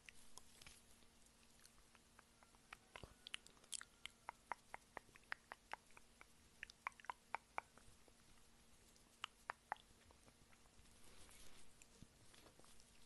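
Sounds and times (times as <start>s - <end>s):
wet chewing clicks and smacks: 0.0s - 7.9s, 9.0s - 10.7s.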